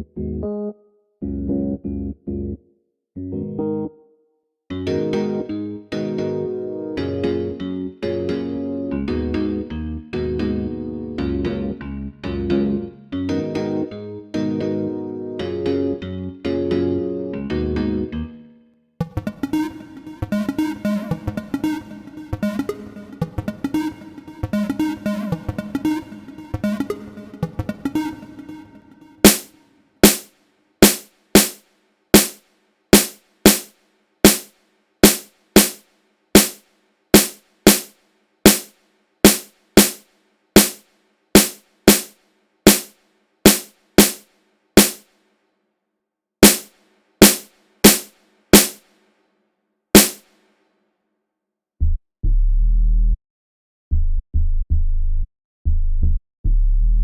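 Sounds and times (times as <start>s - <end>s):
drum machine percussion hits: 19.0s - 28.6s, 29.2s - 31.6s, 32.2s - 32.4s, 33.0s - 35.8s, 36.4s - 36.6s, 37.2s - 37.9s, 38.5s - 40.0s, 40.6s - 40.8s, 41.4s - 42.1s, 42.7s - 42.9s, 43.5s - 44.2s, 44.8s - 45.0s, 46.4s - 48.8s, 50.0s - 50.3s
deep bass notes: 51.8s - 53.2s, 53.9s - 57.0s.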